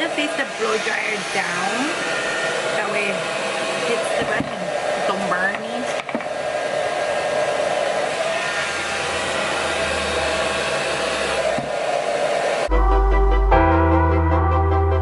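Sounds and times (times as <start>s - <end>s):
hair dryer running: 0.0s - 12.7s
keyboard music: 12.7s - 15.0s.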